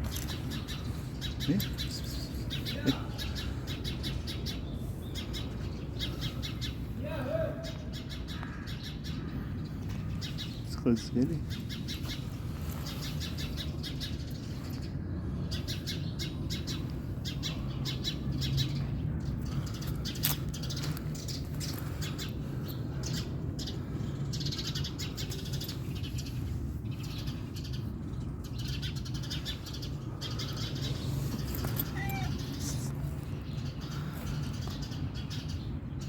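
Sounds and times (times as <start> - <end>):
small birds alarm chirping: 0.0 - 36.0
steady low rumble: 8.5 - 36.0.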